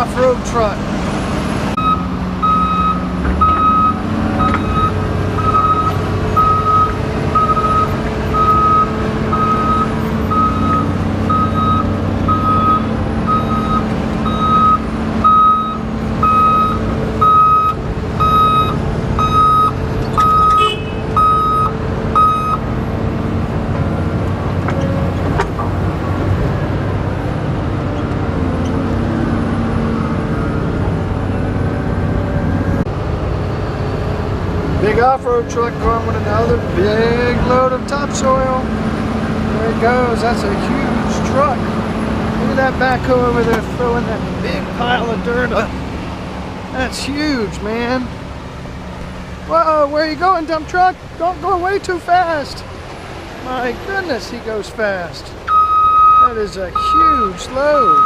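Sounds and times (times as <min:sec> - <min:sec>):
diesel engine running: 0:00.0 - 0:58.0
backup alarm beeping: 0:01.8 - 0:22.6, 0:55.5 - 0:58.0.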